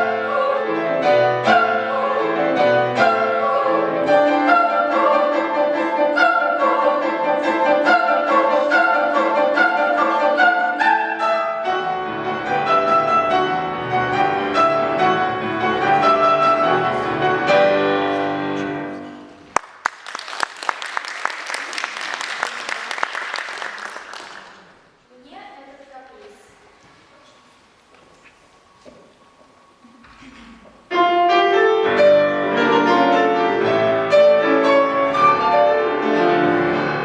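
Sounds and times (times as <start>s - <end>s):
classical piano accompaniment: 0.0s - 19.5s, 28.4s - 37.0s
audience applause: 19.4s - 24.9s.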